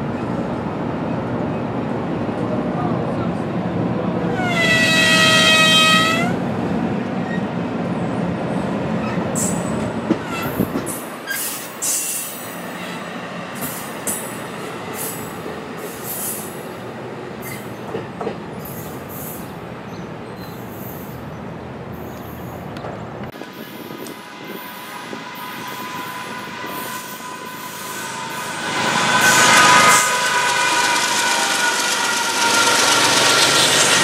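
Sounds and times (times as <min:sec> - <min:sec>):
train wheels rumbling on rail: 0:00.0 - 0:34.0
high-pitched wheel squeals: 0:04.4 - 0:06.4, 0:24.5 - 0:34.0.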